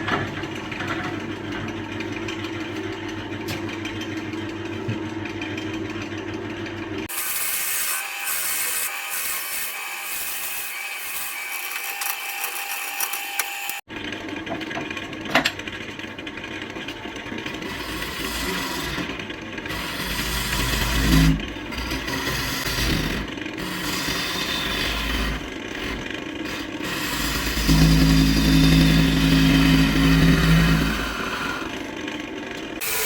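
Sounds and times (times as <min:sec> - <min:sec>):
lathe low rumble: 0:15.7 - 0:33.0
turning tool scraping wood: 0:16.8 - 0:33.0.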